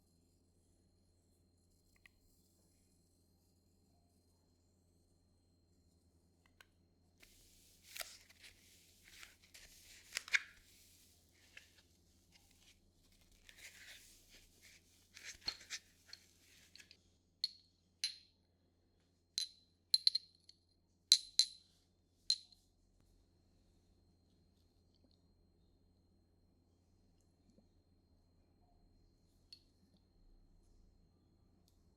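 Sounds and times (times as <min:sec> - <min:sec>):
soft rustling of material: 0:07.2 - 0:17.1.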